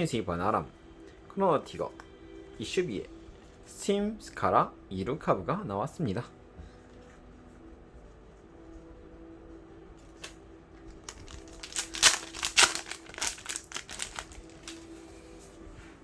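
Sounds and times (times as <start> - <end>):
wrapper crinkling as torn open: 10.2 - 15.0.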